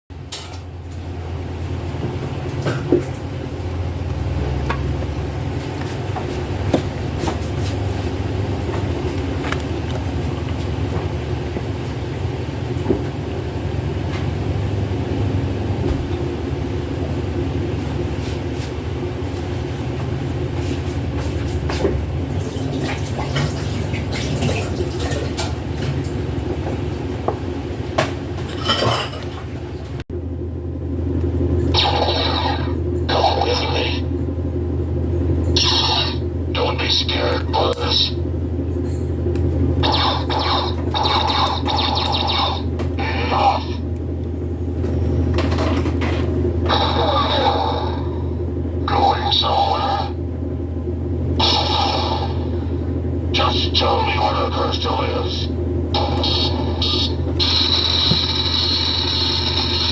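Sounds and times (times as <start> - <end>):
steady low hum: 0.1 - 59.9.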